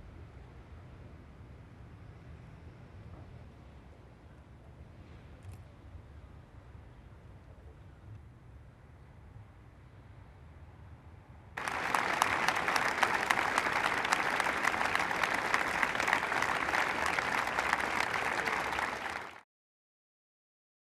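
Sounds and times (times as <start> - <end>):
crowd applauding: 11.6 - 19.4.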